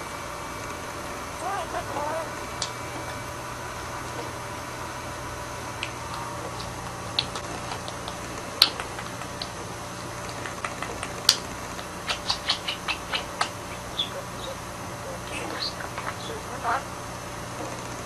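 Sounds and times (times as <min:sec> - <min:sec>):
budgerigar chattering and chirping: 0:10.4 - 0:17.0.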